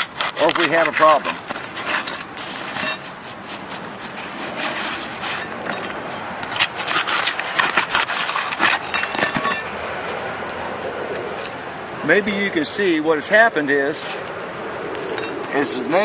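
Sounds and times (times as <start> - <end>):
knife scraping through shingle: 0.0 - 10.8.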